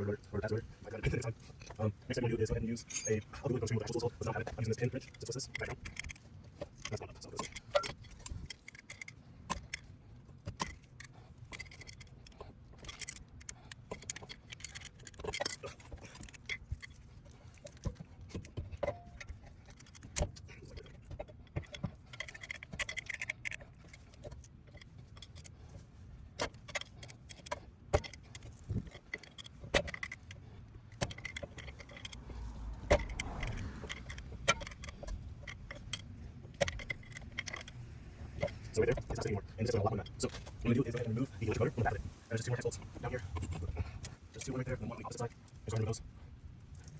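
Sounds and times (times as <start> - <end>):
metallic tool clinks: 2.8 - 3.2.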